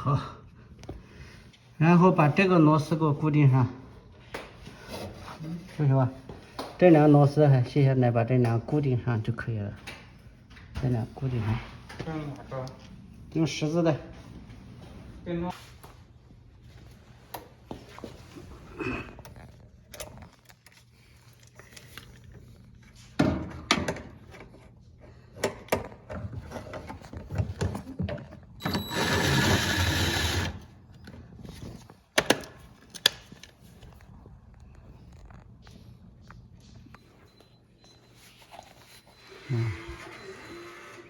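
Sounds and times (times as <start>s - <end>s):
electric screwdriver driving screw: 28.7s - 30.7s.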